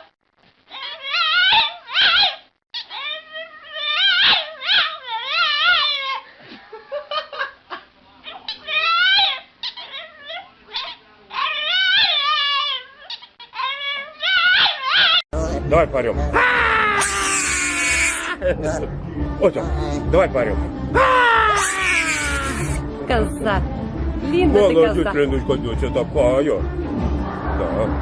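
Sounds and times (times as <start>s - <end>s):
dog howling and whining: 0.7s - 6.2s, 8.5s - 15.2s.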